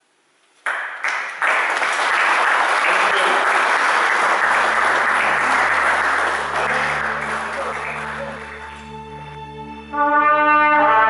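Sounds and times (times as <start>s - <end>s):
audience clapping: 0.6s - 9.2s.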